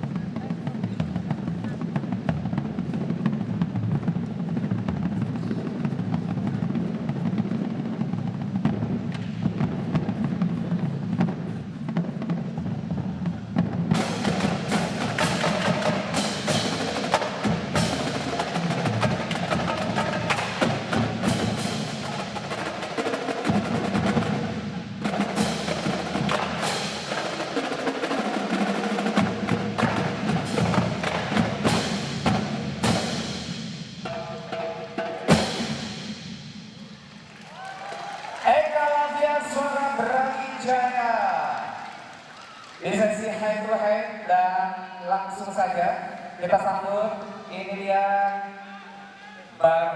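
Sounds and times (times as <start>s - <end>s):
bass drums: 0.0s - 27.8s, 28.4s - 37.0s
snare drums: 0.0s - 43.5s.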